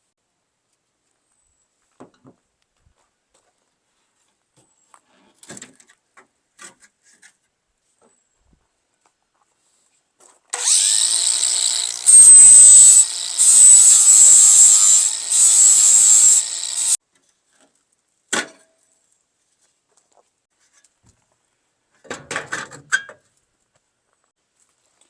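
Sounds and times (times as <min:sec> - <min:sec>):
electric drill drilling metal: 0:10.6 - 0:17.0.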